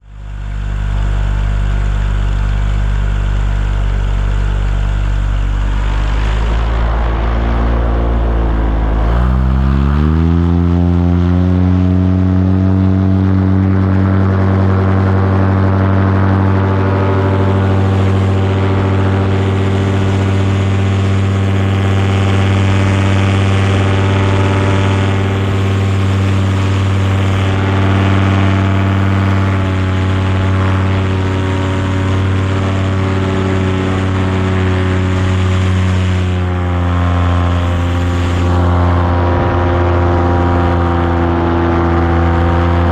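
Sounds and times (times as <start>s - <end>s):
small aircraft engine and propeller: 0.0s - 42.9s.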